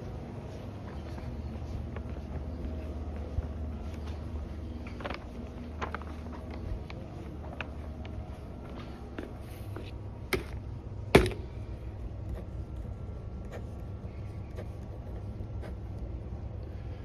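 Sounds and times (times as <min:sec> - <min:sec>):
sharp knocks: 0:11.2 - 0:11.6.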